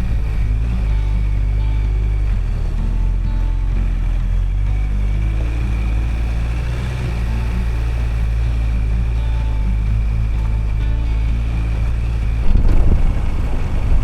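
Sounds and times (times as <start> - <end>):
vehicle engine and road drone: 0.0 - 14.0.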